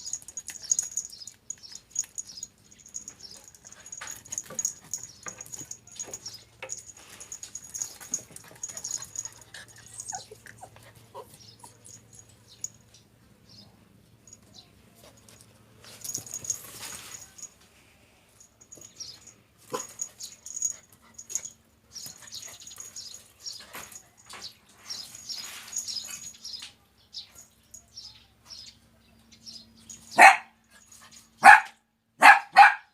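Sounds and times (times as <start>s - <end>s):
faint scattered small sounds: 0.0s - 31.5s
dog barking: 30.1s - 30.6s, 31.4s - 32.9s.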